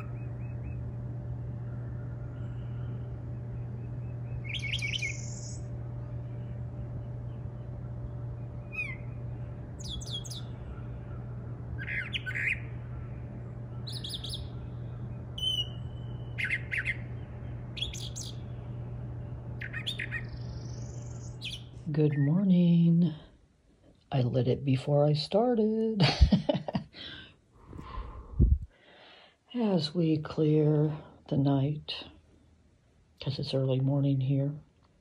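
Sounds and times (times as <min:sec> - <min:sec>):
bird high calls: 0:00.0 - 0:22.4
steady low hum: 0:00.0 - 0:35.0.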